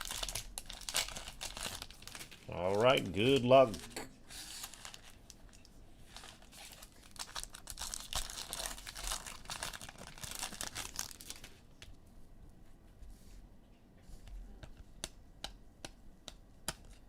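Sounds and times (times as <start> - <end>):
plastic wrapper crinkling and tearing: 0.0 - 11.6.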